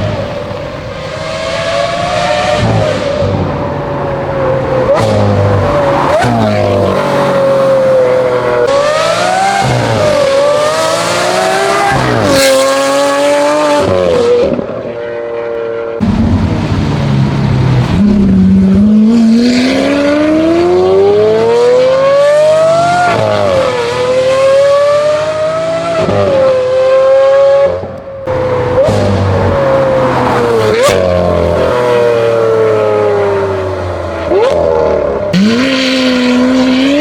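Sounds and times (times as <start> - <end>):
high-pitched car engine revving: 16.0 - 37.0.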